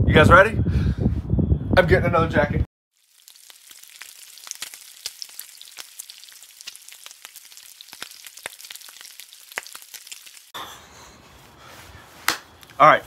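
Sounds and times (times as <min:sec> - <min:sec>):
food sizzling on a griddle: 0:02.9 - 0:10.6
fat spattering pops: 0:03.0 - 0:10.5.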